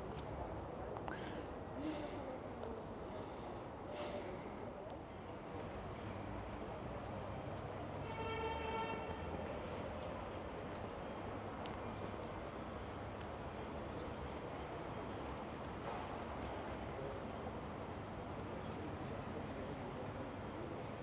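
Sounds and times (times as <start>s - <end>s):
high-pitched insect trill: 6.4s - 21.0s.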